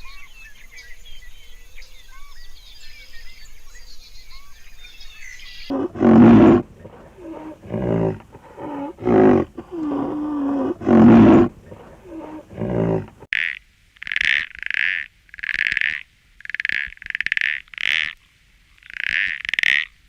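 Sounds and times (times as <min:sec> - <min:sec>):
faint birdsong: 0:00.0 - 0:13.3
big cat roaring: 0:05.7 - 0:13.3.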